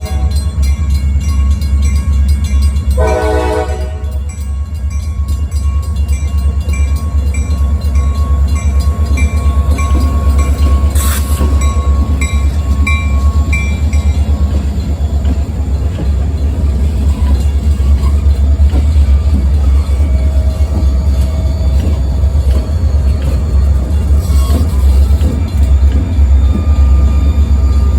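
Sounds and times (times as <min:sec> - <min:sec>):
diesel locomotives rumbling past: 0:00.0 - 0:27.9
train horn blast: 0:03.0 - 0:04.2.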